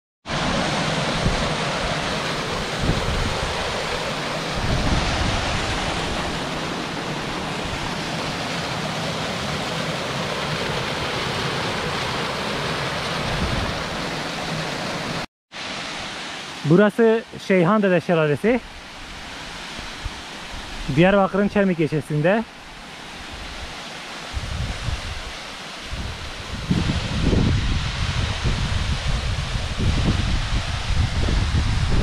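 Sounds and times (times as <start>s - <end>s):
waterfall rushing: 0.3s - 24.4s
wind buffeting microphone: 0.4s - 8.6s, 13.2s - 14.1s, 24.3s - 32.0s.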